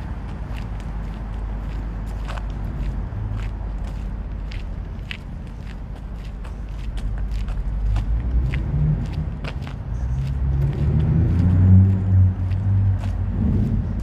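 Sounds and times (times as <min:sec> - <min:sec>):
footsteps crunching on icy snow: 0:00.0 - 0:14.0
car passing: 0:07.0 - 0:14.0.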